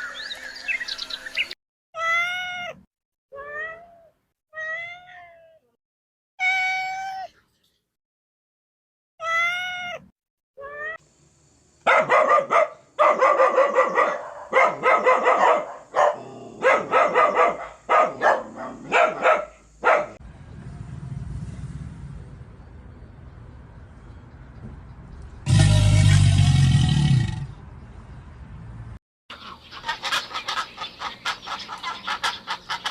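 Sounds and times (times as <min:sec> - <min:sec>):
cat meowing: 0:02.0 - 0:05.7, 0:06.4 - 0:07.3, 0:09.2 - 0:11.0
low rumbling: 0:20.2 - 0:29.0
rapid repeated animal calls: 0:29.3 - 0:32.9.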